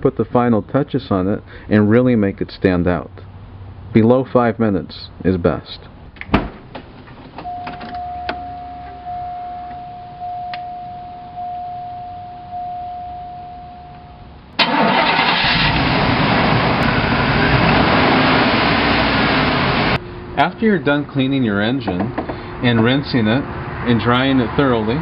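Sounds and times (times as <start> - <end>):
car warning chime dinging: 7.4 - 14.3
car engine starting and running: 14.5 - 20.9.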